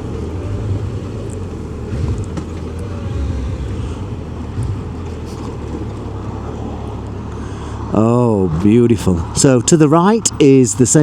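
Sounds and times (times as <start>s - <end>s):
motorcycle engine running: 0.0s - 7.4s
road and wind noise: 0.0s - 11.0s.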